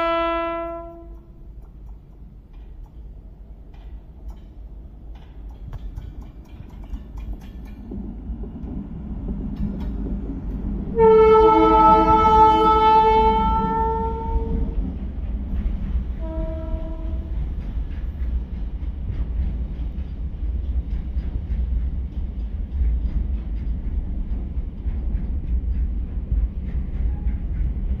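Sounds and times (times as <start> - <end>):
locomotive horn blasts: 0.0 - 1.3, 11.0 - 14.7, 16.2 - 17.3
freight train rumbling past: 0.0 - 28.0
wagon wheels clacking on rail joints: 0.8 - 12.7, 14.4 - 28.0.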